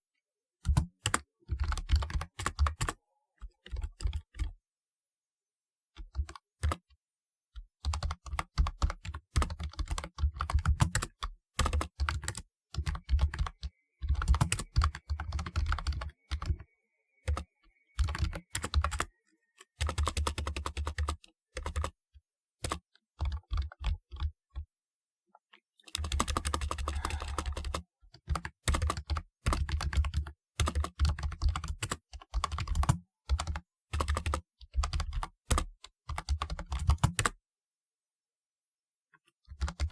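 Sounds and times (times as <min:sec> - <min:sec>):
keyboard typing clicks: 0:11.6 - 0:16.6, 0:17.2 - 0:19.1, 0:25.9 - 0:37.3.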